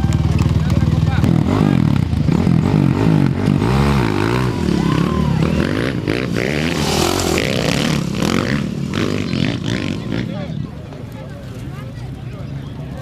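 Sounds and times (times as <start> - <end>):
motorcycle engine revving: 0.0 - 10.8
rush of noise: 2.4 - 10.1.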